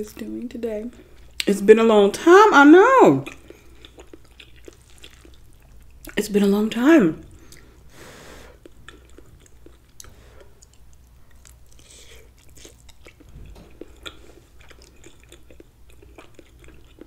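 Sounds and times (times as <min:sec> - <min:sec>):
person chewing food: 0:03.2 - 0:06.2, 0:07.3 - 0:17.0.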